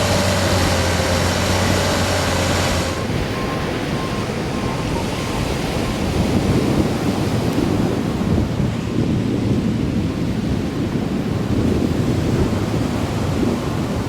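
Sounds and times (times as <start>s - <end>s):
engine running: 0.0s - 5.8s
breaking surf: 0.0s - 14.0s
wind rumbling on microphone: 0.0s - 14.0s
faint beeping: 1.6s - 6.3s.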